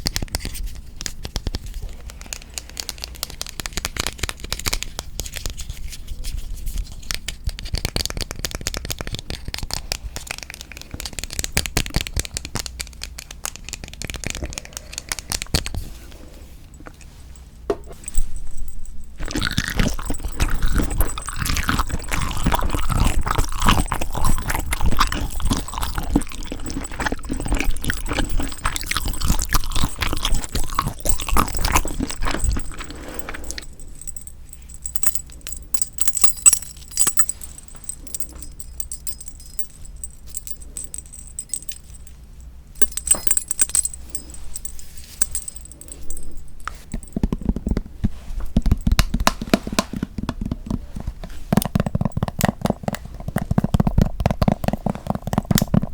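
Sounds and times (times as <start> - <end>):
chewing raw shrimp: 19.1 - 34.2.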